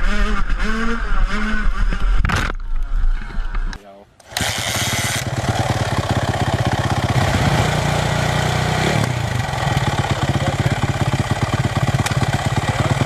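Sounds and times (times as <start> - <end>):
dirt bike engine running: 4.3 - 13.0.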